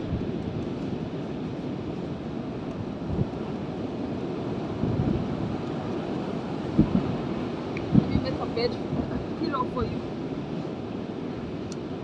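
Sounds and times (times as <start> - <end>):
surf washing: 0.0 - 12.0
wind rumbling on microphone: 0.0 - 12.0
low thumps from gusts: 2.8 - 3.4, 4.7 - 5.7, 6.5 - 9.9.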